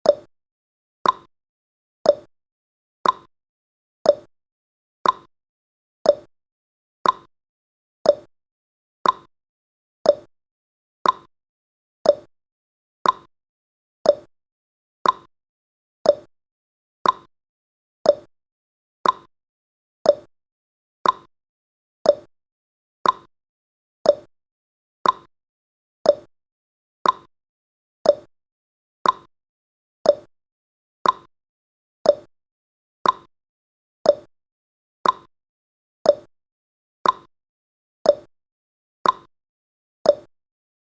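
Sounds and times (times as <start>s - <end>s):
timer ticking: 0.0s - 0.3s, 1.0s - 1.3s, 2.0s - 2.3s, 3.0s - 3.3s, 4.0s - 4.3s, 5.0s - 5.3s, 6.0s - 6.3s, 7.0s - 7.3s, 8.0s - 8.3s, 9.0s - 9.3s, 10.0s - 10.3s, 11.0s - 11.3s, 12.0s - 12.3s, 13.0s - 13.3s, 14.0s - 14.3s, 15.0s - 15.3s, 16.0s - 16.3s, 17.0s - 17.3s, 18.0s - 18.3s, 19.0s - 19.3s, 20.0s - 20.3s, 21.0s - 21.3s, 22.0s - 22.3s, 23.0s - 23.3s, 24.0s - 24.3s, 25.0s - 25.3s, 26.0s - 26.3s, 27.0s - 27.3s, 28.0s - 28.3s, 29.0s - 29.3s, 30.0s - 30.3s, 31.0s - 31.3s, 32.0s - 32.3s, 33.0s - 33.3s, 34.0s - 34.3s, 35.0s - 35.3s, 36.0s - 36.3s, 37.0s - 37.3s, 38.1s - 38.3s, 39.0s - 39.3s, 40.1s - 40.3s.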